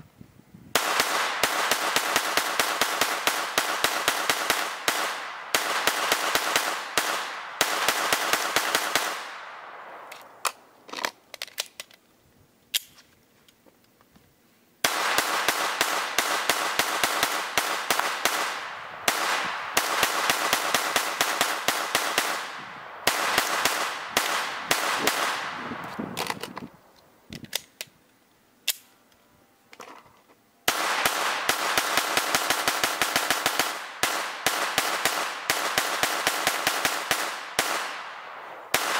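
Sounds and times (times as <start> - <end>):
rifle firing rapidly: 0.8 - 9.5, 14.8 - 25.6, 30.7 - 38.9
single gunshots: 14.8 - 25.9.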